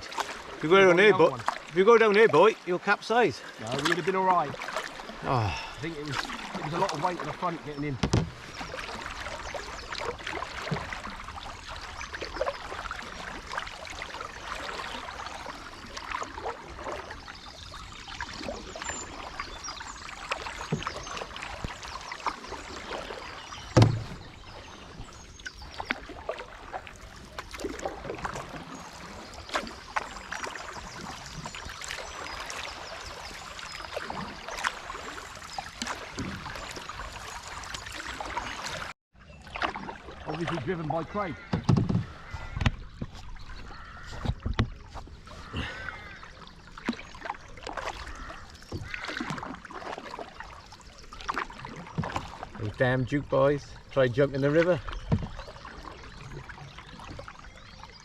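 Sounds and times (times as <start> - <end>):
paddles splashing in water: 0.0 - 58.0.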